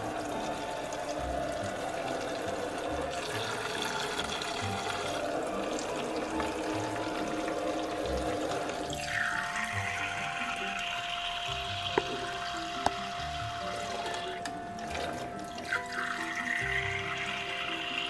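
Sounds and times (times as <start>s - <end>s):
water stream into plastic cup: 0.0s - 18.0s.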